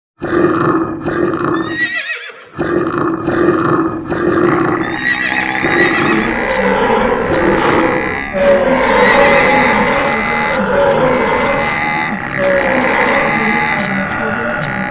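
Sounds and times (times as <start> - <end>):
horse whinnying: 1.5 - 2.6, 4.5 - 13.9
herd rumbling with thuds: 2.6 - 14.9.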